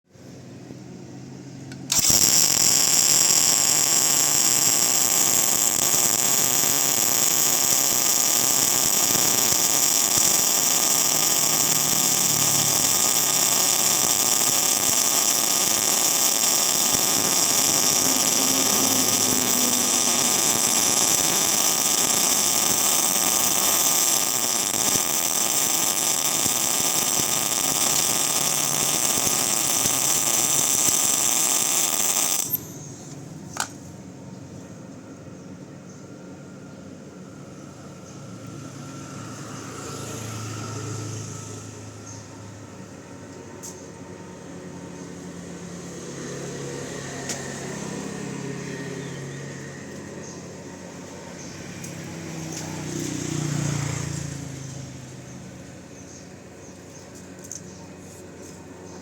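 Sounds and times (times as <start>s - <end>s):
faint welder machine hum: 0.1s - 59.0s
welding arc hissing crackle: 1.7s - 33.7s, 51.1s - 55.8s.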